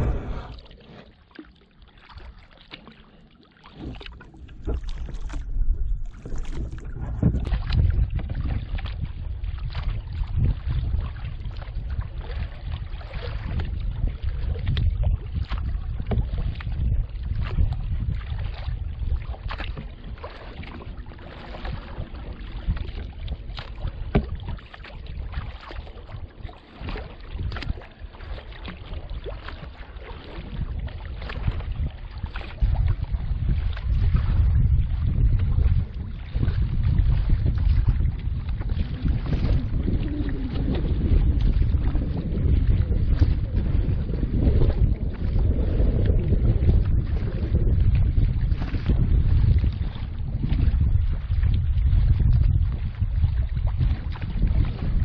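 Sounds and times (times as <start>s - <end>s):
water splashing and slapping: 0.0s - 55.0s
wind rumbling on microphone: 0.0s - 55.0s.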